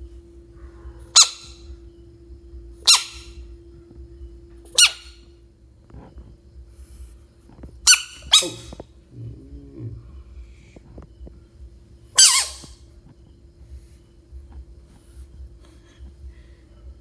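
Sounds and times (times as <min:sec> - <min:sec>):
frog squeaking: 0:01.1 - 0:01.6, 0:02.8 - 0:03.4, 0:04.7 - 0:05.2, 0:07.9 - 0:09.8, 0:12.2 - 0:12.8.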